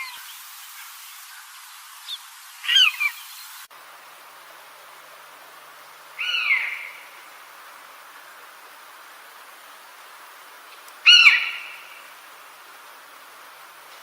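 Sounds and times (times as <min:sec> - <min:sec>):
steady background hiss: 0:00.0 - 0:14.0
bird calling: 0:02.0 - 0:03.5, 0:06.2 - 0:07.3, 0:11.0 - 0:12.2.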